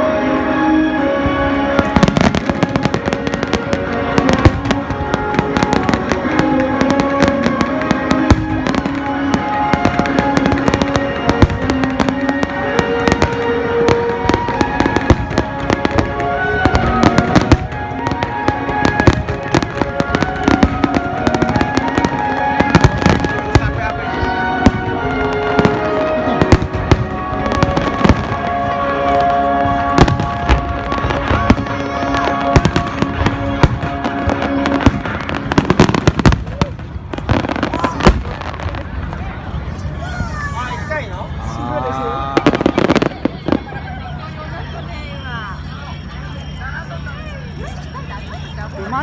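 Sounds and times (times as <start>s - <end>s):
music with sustained notes: 0.0s - 40.0s
fireworks bangs and crackles: 0.0s - 49.0s.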